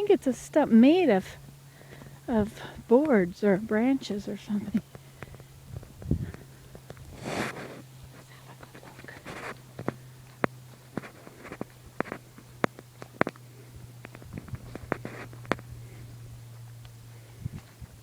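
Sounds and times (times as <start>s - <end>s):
steady low hum: 0.0s - 18.0s
brief rustles: 7.0s - 12.2s.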